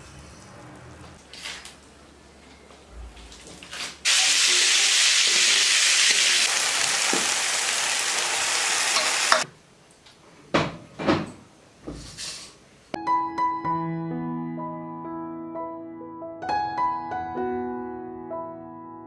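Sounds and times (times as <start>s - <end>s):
food sizzling in hot oil: 4.1s - 9.4s.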